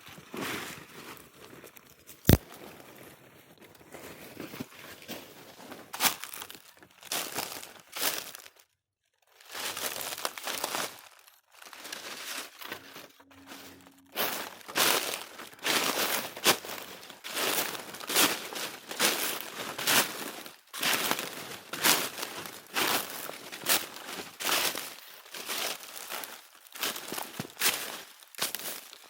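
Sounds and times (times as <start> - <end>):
footsteps crunching on forest floor: 3.9 - 8.6.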